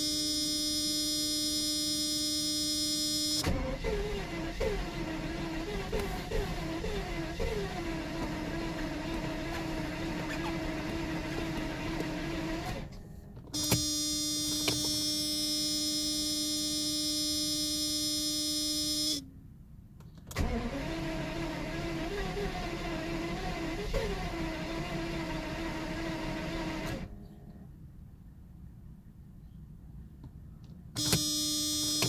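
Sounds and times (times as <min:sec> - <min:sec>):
car engine cranking on starter: 0:03.3 - 0:15.0, 0:20.2 - 0:27.3.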